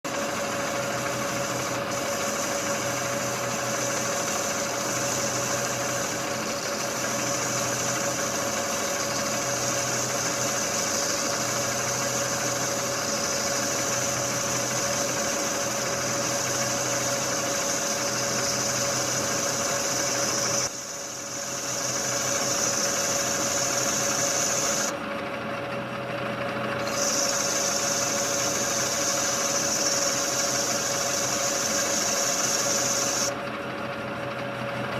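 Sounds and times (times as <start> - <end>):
metal lathe cutting steel: 0.1 - 25.0, 26.8 - 33.4.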